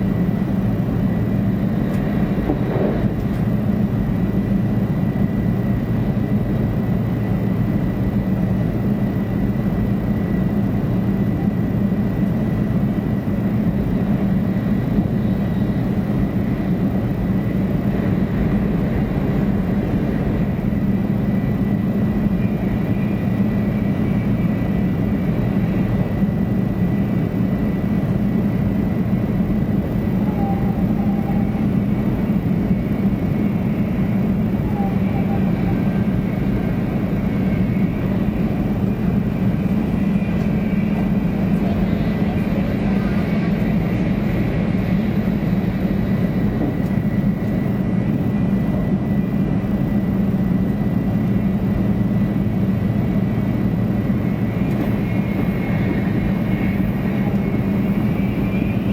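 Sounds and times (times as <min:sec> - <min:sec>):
train running low rumble: 0:00.0 - 0:58.9
faint high whine: 0:00.2 - 0:58.9.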